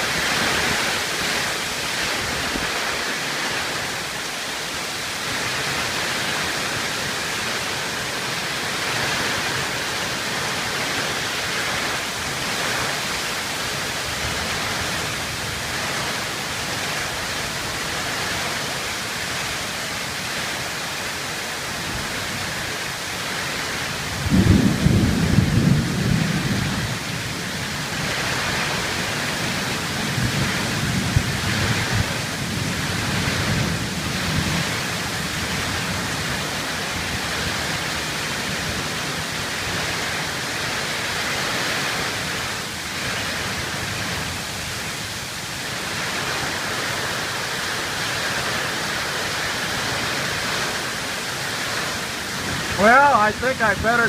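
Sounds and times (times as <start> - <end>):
heavy rain pouring: 0.0 - 54.0
thunder clap and rumble: 24.0 - 40.0.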